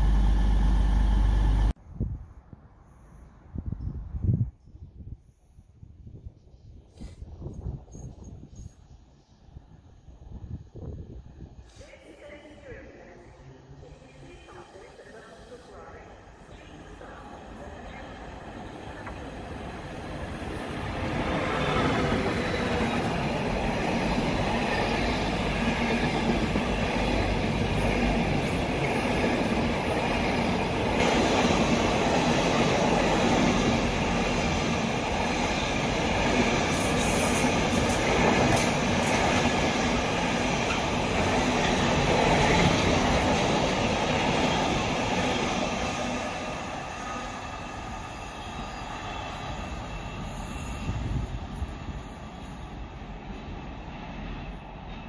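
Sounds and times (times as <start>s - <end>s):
train passing on tracks: 0.0s - 5.4s, 6.0s - 55.0s.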